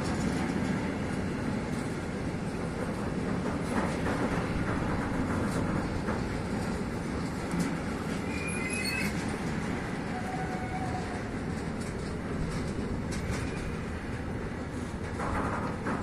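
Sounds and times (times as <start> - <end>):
train wheels rumbling on rails: 0.0 - 16.0
high-pitched wheel squeals: 8.2 - 9.2, 10.1 - 11.2.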